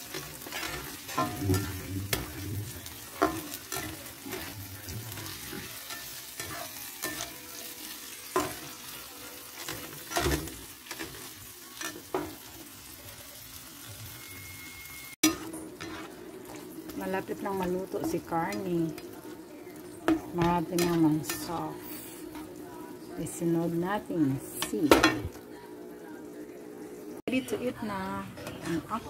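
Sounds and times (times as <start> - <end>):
spatula scraping a pan: 0.0 - 12.6, 15.2 - 19.2
food sizzling in oil: 0.0 - 29.0.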